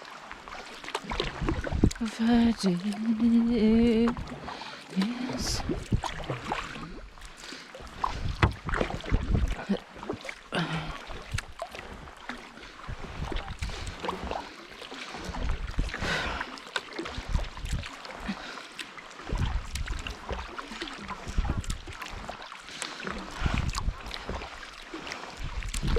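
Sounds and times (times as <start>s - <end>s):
paddle splashing in water: 0.0s - 25.9s
wind buffeting microphone: 1.2s - 2.6s, 5.4s - 7.1s, 7.9s - 9.7s, 19.2s - 20.3s, 21.2s - 22.3s, 23.2s - 24.5s, 25.4s - 25.9s.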